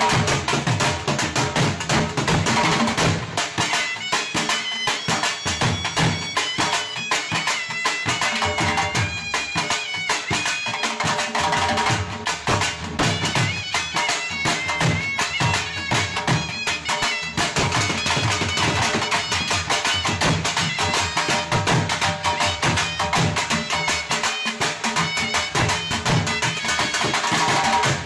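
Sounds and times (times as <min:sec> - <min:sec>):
fast busy drumming: 0:00.0 - 0:28.0
reedy wind instrument melody: 0:13.0 - 0:28.0.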